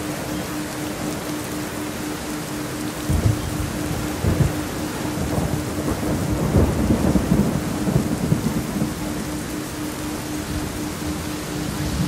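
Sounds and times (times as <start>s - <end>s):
steady rain: 0.0s - 12.0s
thunder rumbling: 3.1s - 12.0s.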